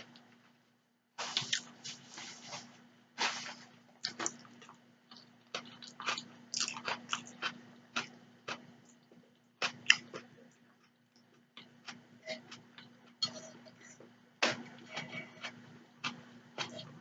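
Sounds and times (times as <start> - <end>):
wet chewing clicks and smacks: 4.0 - 13.4.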